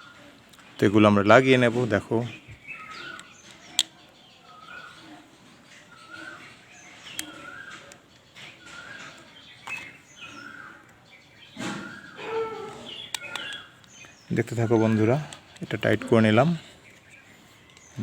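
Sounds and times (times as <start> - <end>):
bird chirping: 0.0 - 18.0
sharp clicks: 2.9 - 4.0, 7.0 - 10.0, 12.7 - 16.1.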